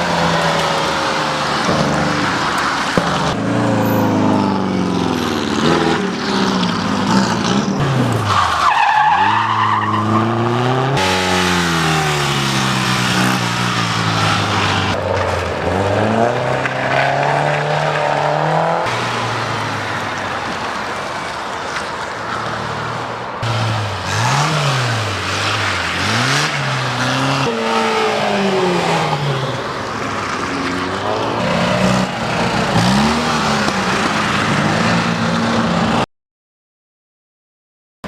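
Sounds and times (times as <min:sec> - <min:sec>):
car engine revving: 0:23.4 - 0:36.0.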